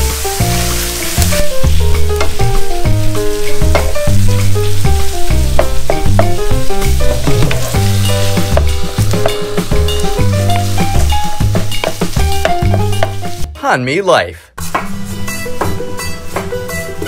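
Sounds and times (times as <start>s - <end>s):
meat sizzling in a pan: 0.0s - 13.4s
background music with bass: 0.0s - 14.0s, 14.6s - 17.0s
wooden spatula stirring: 3.3s - 13.2s.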